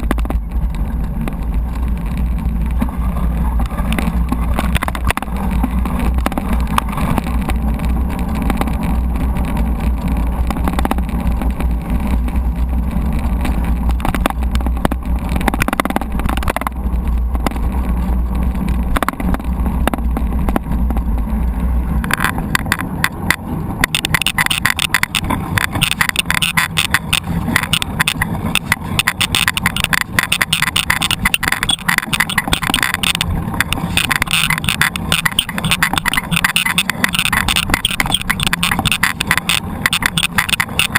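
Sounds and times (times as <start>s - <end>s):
bike rattling over rough ground: 0.0s - 40.9s
wind rumble on microphone: 0.0s - 40.9s.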